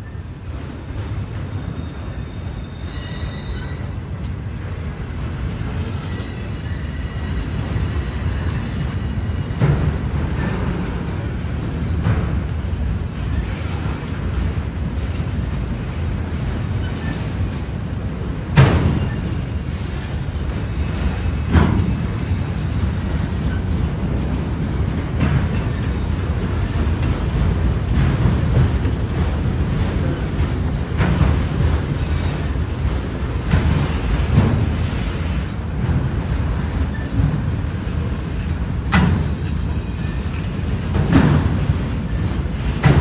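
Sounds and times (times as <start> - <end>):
freight train rumbling past: 0.0 - 43.0
wheels clacking over rail joints: 0.0 - 43.0.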